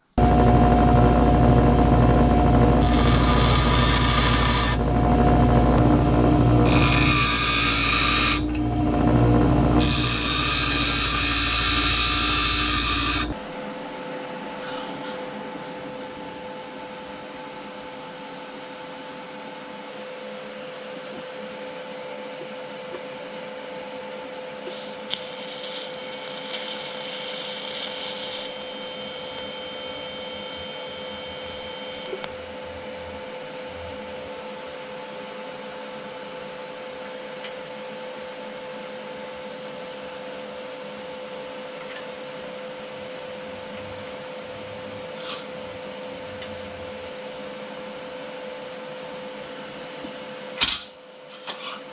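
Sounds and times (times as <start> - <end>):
machine humming: 0.0 - 13.4.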